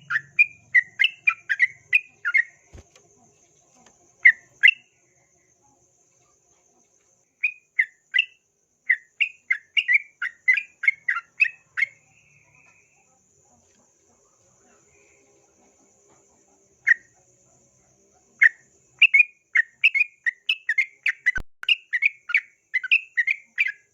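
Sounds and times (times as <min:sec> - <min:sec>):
bulbul chirping song: 0:00.0 - 0:06.4, 0:07.2 - 0:13.5, 0:16.7 - 0:17.4, 0:18.3 - 0:23.9.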